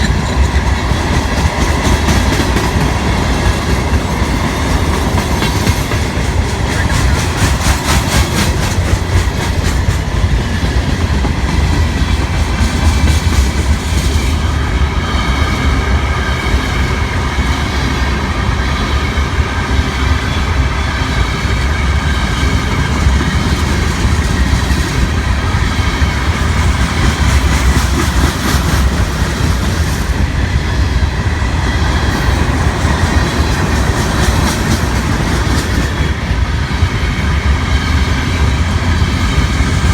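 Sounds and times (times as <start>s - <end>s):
freight train rumbling past: 0.0s - 39.9s
wheels clacking over rail joints: 22.2s - 31.0s.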